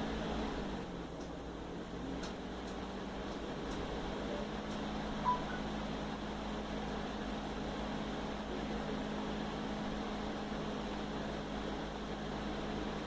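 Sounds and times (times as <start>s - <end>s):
low hum: 0.0s - 13.0s
short high beep: 5.2s - 5.6s.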